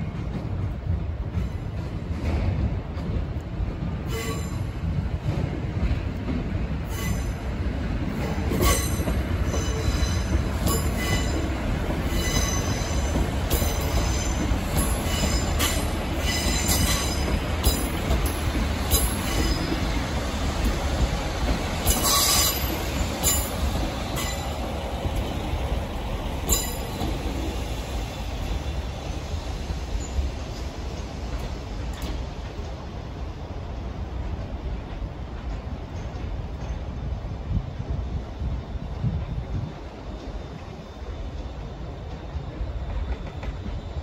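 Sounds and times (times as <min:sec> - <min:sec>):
diesel train engine rumble: 0:00.0 - 0:44.0
train wheels clicking on rail joints: 0:00.0 - 0:44.0
train wheel squeal: 0:04.0 - 0:04.9, 0:06.8 - 0:07.5, 0:08.2 - 0:20.8, 0:21.6 - 0:25.5, 0:26.4 - 0:32.1.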